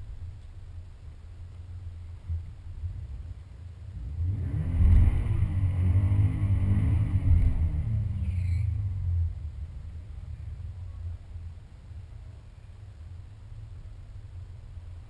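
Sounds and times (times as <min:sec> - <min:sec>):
car engine revving hard: 0:04.0 - 0:08.8.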